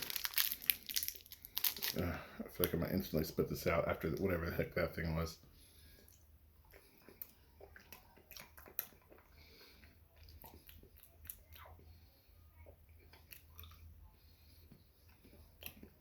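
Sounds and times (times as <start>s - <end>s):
person chewing hard candy: 0.0s - 2.8s, 6.0s - 12.0s, 12.6s - 16.0s.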